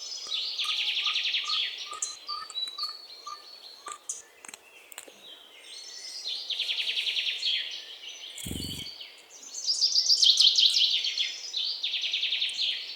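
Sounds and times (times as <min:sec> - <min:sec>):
great tit trilling calls: 0:08.4 - 0:08.9.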